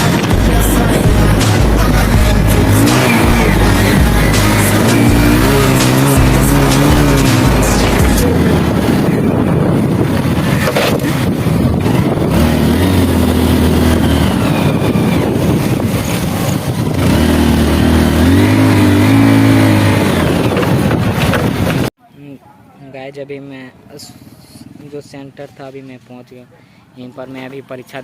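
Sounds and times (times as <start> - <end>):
motorbike engine accelerating: 0.0 - 21.9
wind and road noise: 0.0 - 22.0.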